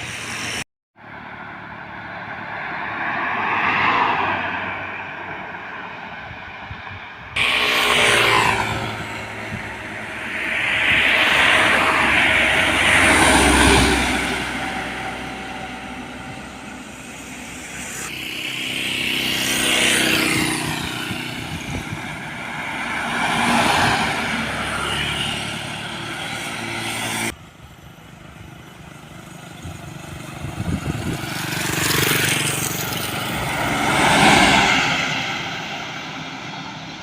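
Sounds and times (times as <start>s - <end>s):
heavy vehicles driving past: 7.4s - 37.0s.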